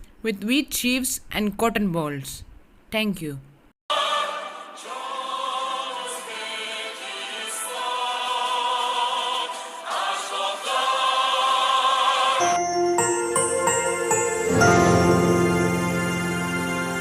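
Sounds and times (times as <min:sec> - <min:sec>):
choral singing: 0:03.9 - 0:17.0
music: 0:04.1 - 0:17.0.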